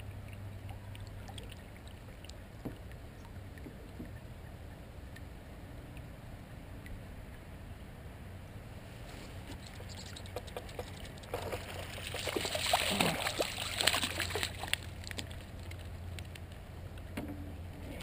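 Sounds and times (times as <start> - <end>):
water splashing and pouring: 9.5 - 16.0.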